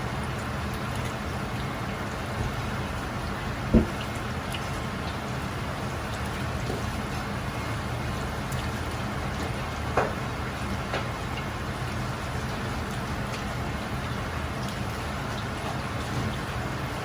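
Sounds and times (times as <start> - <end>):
utensil knocks: 3.7 - 4.1.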